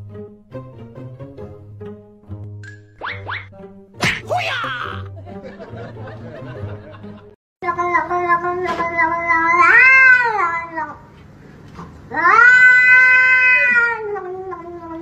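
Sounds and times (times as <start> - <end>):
cat yowling: 9.0 - 11.0, 12.1 - 15.0.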